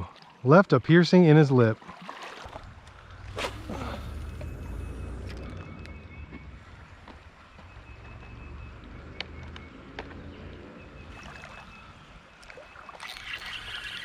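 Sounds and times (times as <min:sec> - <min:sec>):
creek water trickling: 0:00.0 - 0:09.6, 0:10.2 - 0:14.0
water splashing: 0:01.6 - 0:05.9, 0:11.0 - 0:14.0.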